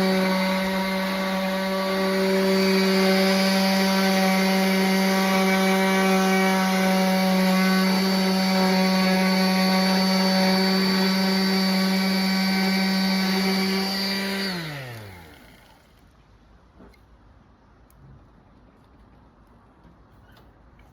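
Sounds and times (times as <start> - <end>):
power sander on wood: 0.0 - 16.0.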